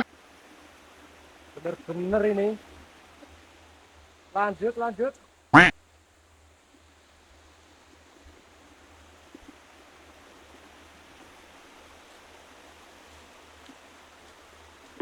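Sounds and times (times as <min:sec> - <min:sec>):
forest stream flowing: 0:00.0 - 0:15.0.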